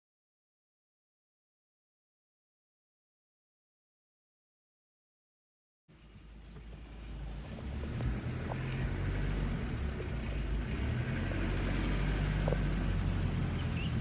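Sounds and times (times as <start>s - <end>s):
moving vehicle rumble: 5.9s - 14.0s.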